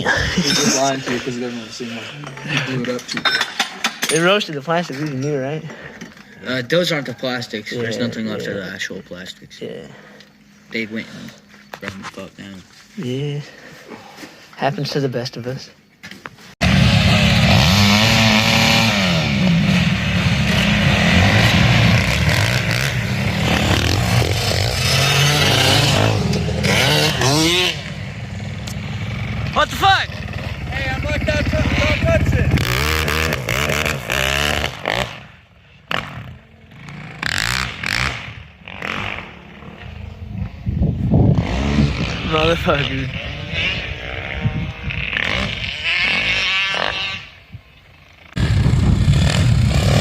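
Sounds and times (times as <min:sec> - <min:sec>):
snowmobile engine running: 0:16.6 - 0:35.1, 0:48.3 - 0:50.0.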